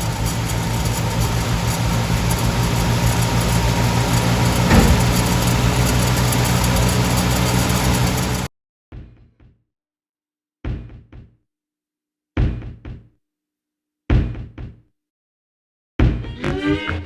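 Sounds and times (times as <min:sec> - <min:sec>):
heavy knocks: 0:04.4 - 0:05.9.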